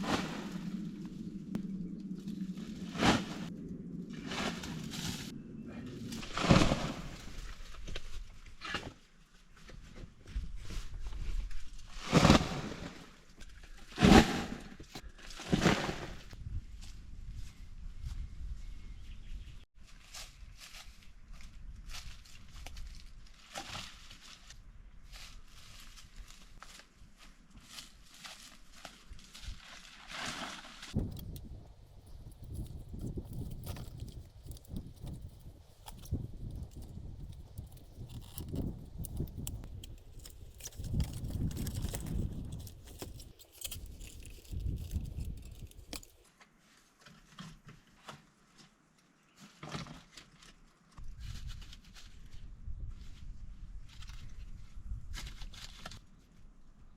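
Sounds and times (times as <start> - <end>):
rustling: 19.8 - 56.1.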